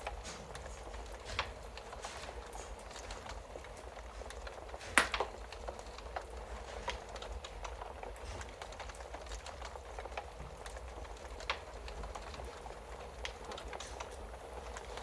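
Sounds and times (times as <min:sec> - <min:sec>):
fire pops: 0:00.0 - 0:15.0
wood fire crackling: 0:00.0 - 0:15.0.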